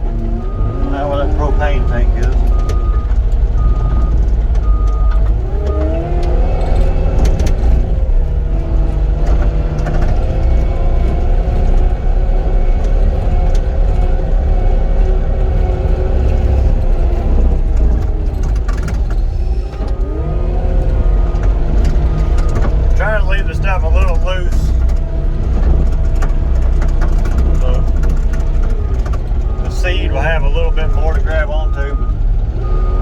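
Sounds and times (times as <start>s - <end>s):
loader diesel engine running: 0.0s - 33.0s
reversing alarm beeps: 0.4s - 5.9s, 30.6s - 33.0s.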